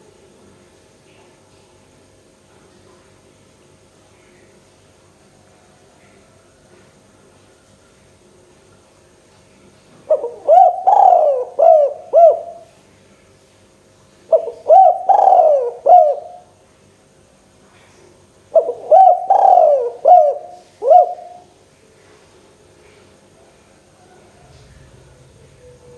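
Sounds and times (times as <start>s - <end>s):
dove cooing: 10.1s - 12.7s, 14.3s - 16.5s, 18.5s - 21.5s.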